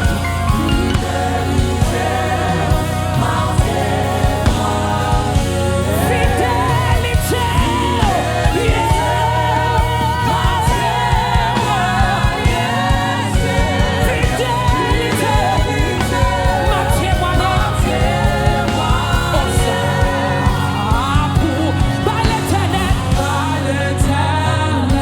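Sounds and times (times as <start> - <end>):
gospel band playing: 0.0 - 25.0
steady drum beat: 0.0 - 25.0.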